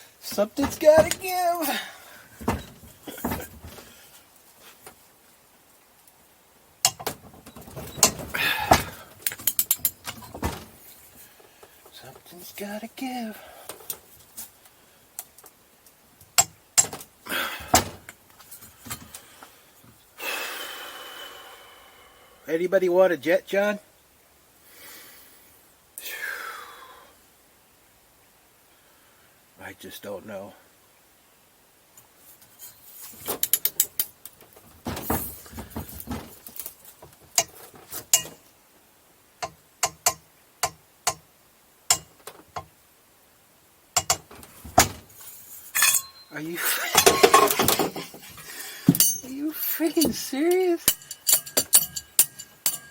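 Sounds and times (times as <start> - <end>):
metal tools clanking: 0.2 - 4.0, 6.8 - 11.0, 16.8 - 18.1, 33.1 - 36.7, 37.4 - 38.4, 44.0 - 52.9
scraping rustle: 0.2 - 5.4, 32.1 - 38.6, 44.3 - 52.9.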